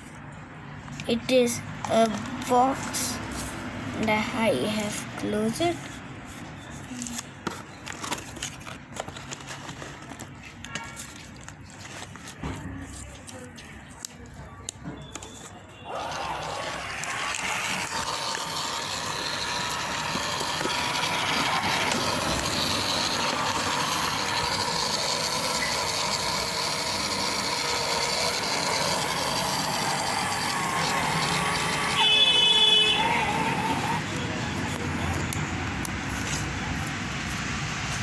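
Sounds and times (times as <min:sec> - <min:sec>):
small motor whirring with rattle: 0:15.8 - 0:38.0.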